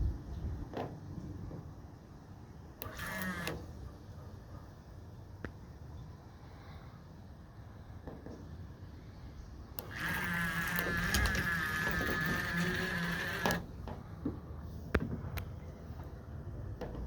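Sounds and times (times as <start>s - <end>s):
sharp clicks: 2.8s - 3.7s, 9.8s - 13.7s
small boat motor whining: 2.8s - 3.7s, 9.8s - 14.0s.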